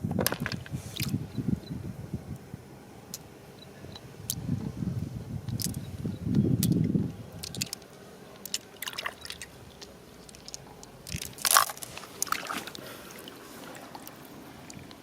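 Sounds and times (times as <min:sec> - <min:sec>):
water sloshing and splashing: 0:00.2 - 0:01.2, 0:08.4 - 0:15.0.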